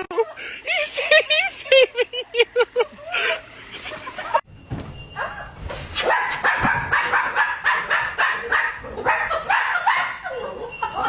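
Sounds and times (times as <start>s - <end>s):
dog barking rapidly: 5.2s - 10.4s.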